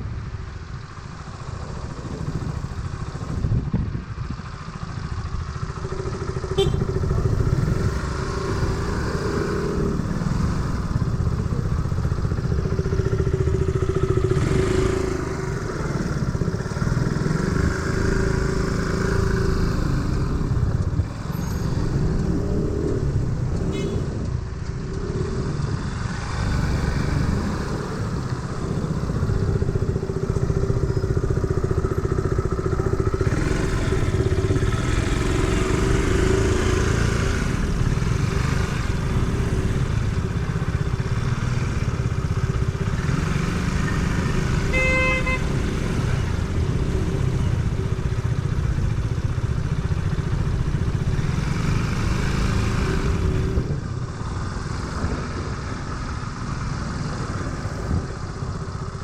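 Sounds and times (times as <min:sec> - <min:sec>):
wind and tyre noise: 0:00.0 - 0:59.0
motor scooter engine running: 0:04.7 - 0:20.6, 0:28.6 - 0:52.8.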